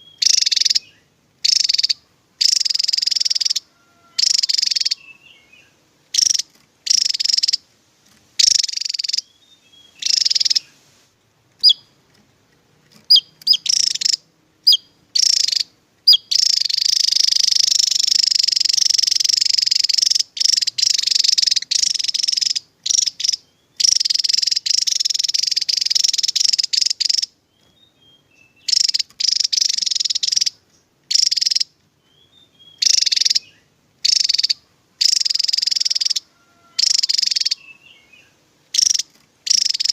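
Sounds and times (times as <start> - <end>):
bird trilling: 0.0 - 7.6, 8.4 - 10.8, 11.6 - 12.0, 13.0 - 39.9
short sharp bird chirps: 0.0 - 7.6, 8.4 - 10.9.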